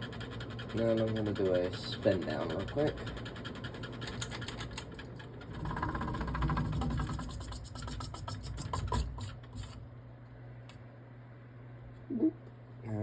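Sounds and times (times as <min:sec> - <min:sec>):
rhythmic rubbing scrape from motor: 0:00.0 - 0:04.5, 0:05.5 - 0:09.8
ceiling fan coasting down: 0:00.0 - 0:13.0.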